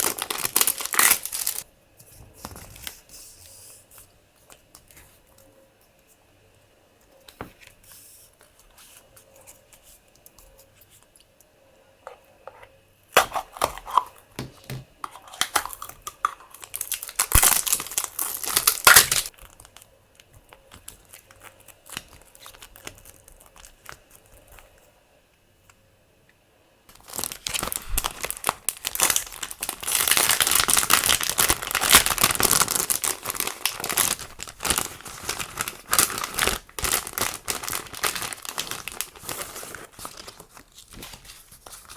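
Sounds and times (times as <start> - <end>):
plastic packaging crinkling and tearing: 0.0 - 1.6, 13.2 - 14.3, 15.0 - 24.6, 26.9 - 41.9.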